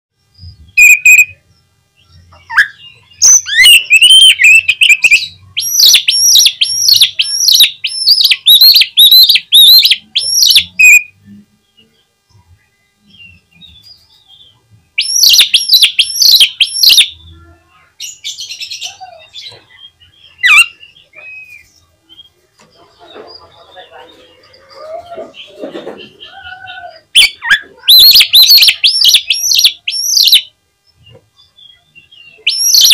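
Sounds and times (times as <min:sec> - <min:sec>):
bird whistling song: 0:00.4 - 0:11.2, 0:13.0 - 0:17.2, 0:19.8 - 0:22.4, 0:27.2 - 0:32.9
single bird calls: 0:02.3 - 0:11.1, 0:24.8 - 0:30.5, 0:32.4 - 0:32.9.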